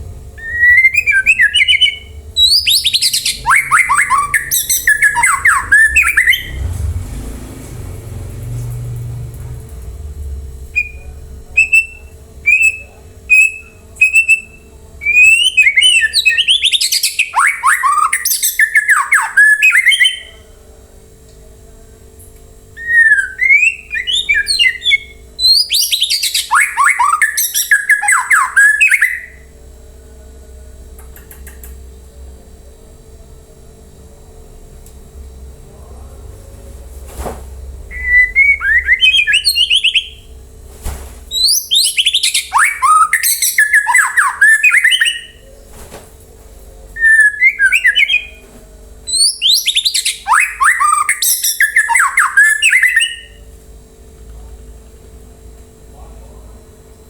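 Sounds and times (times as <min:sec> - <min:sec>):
bird singing whistles and harsh notes: 0:00.4 - 0:06.7, 0:10.8 - 0:20.4, 0:22.8 - 0:29.5, 0:37.9 - 0:40.3, 0:41.3 - 0:45.4, 0:47.0 - 0:48.4, 0:49.1 - 0:53.4.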